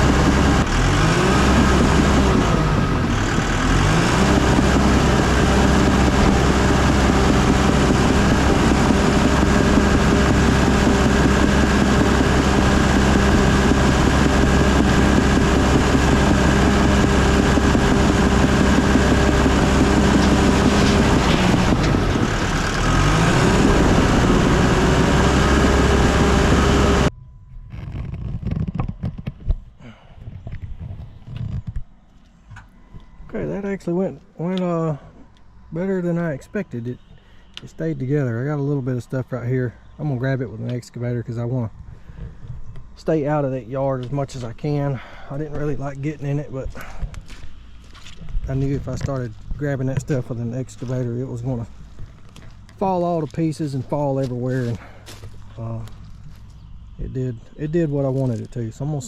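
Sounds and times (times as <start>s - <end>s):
bulldozer diesel engine under load: 0.0s - 27.2s, 33.3s - 59.0s.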